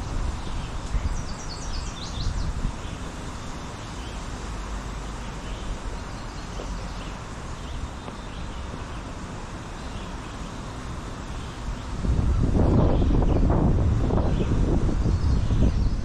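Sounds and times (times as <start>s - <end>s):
wind rumbling on microphone: 0.0s - 16.0s
wind rustling leaves: 0.0s - 16.0s.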